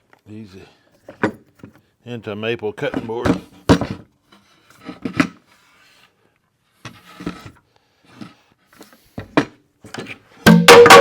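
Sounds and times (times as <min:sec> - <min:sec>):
clamps knocking and clattering: 0:02.9 - 0:04.1.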